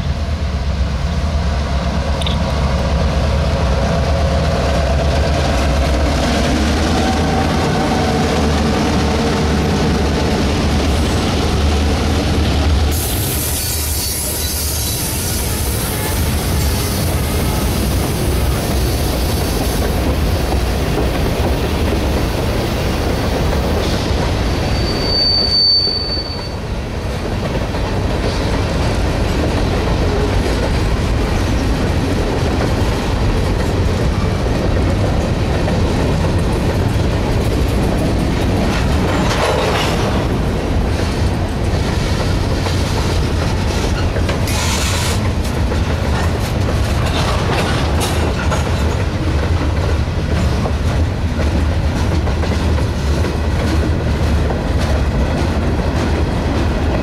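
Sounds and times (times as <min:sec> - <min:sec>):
train wheels rolling on rail: 0:00.0 - 0:57.0
high-pitched wheel squeal: 0:13.4 - 0:15.5, 0:24.7 - 0:26.6.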